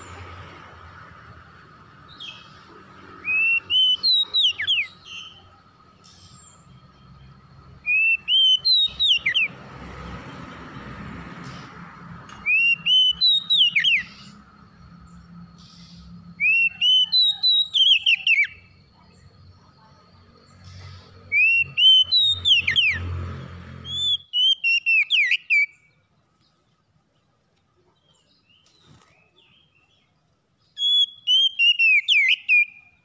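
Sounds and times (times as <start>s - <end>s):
bird whistled song: 2.1s - 9.6s, 11.4s - 19.7s, 20.4s - 23.2s, 23.8s - 26.1s, 28.0s - 33.0s.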